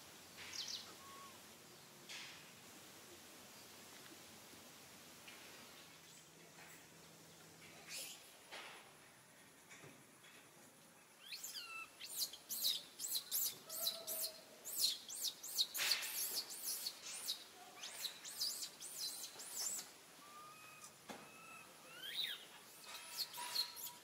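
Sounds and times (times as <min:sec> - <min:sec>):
bird chirping: 0:11.2 - 0:24.0.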